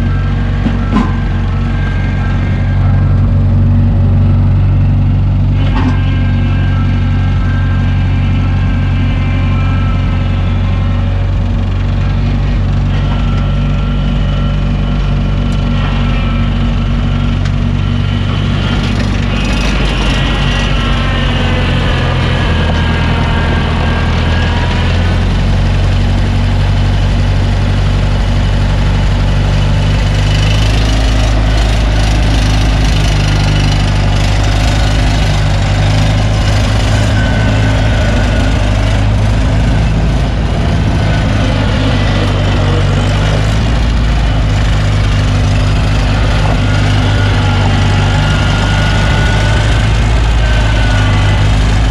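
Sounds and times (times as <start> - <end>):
gasoline engine idling: 0.0 - 51.9.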